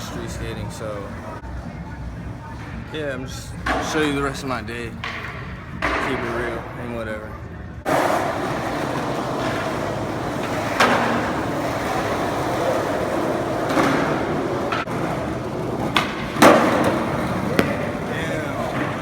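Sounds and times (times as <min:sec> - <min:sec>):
skateboard wheels rolling on pavement: 0:07.8 - 0:19.0
skateboard clacks: 0:07.9 - 0:19.0.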